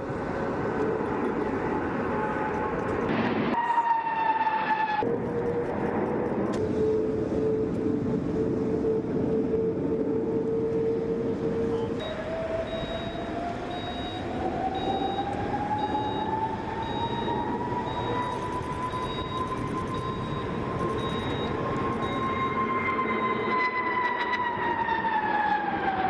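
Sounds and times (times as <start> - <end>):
jet engine whine and roar: 0.0 - 26.0
short high beeps: 17.9 - 22.6.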